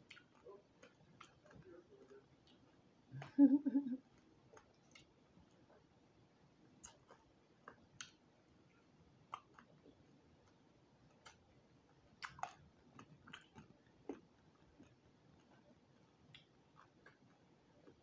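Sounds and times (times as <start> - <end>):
chewing crispy food: 0.0 - 18.0
wet mouth clicks: 6.8 - 8.2, 12.2 - 14.2.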